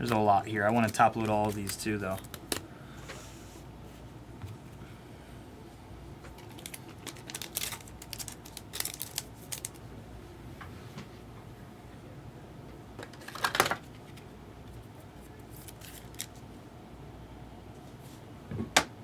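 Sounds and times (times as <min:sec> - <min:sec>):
cards being handled: 0:00.0 - 0:02.6, 0:06.3 - 0:09.8, 0:15.2 - 0:16.4
room hum: 0:00.0 - 0:19.0.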